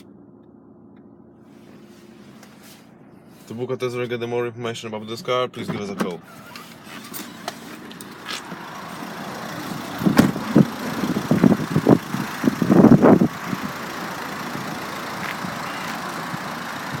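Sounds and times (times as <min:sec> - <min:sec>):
diesel engine idling: 0:06.4 - 0:17.0.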